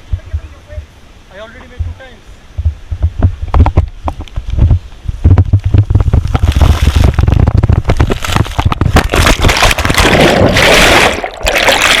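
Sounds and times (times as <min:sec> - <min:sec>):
rushing water splash: 0:05.9 - 0:12.0.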